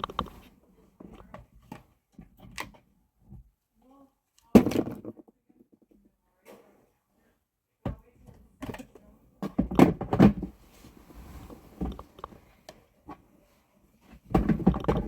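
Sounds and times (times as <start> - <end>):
hard objects knocking: 14.3 - 15.0.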